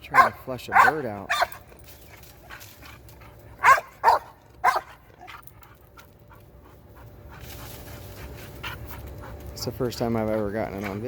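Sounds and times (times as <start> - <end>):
dog barking: 0.1 - 1.6, 3.6 - 5.0.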